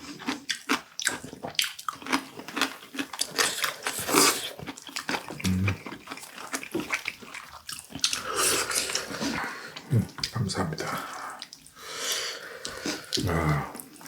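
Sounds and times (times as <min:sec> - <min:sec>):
wet slurping and eating: 0:00.0 - 0:14.0
murmurs: 0:05.4 - 0:05.8.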